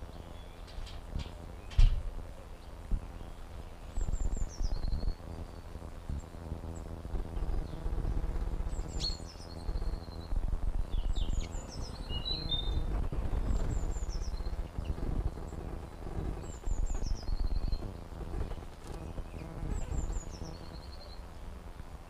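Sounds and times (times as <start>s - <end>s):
birds chirping: 0.0s - 21.7s
microphone rumbling noise: 9.7s - 18.6s.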